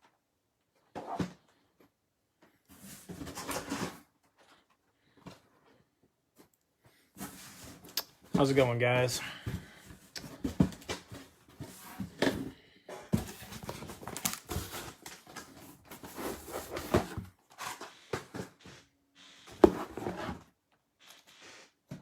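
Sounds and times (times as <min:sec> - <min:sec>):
rustling and crinkling: 0:09.3 - 0:20.6.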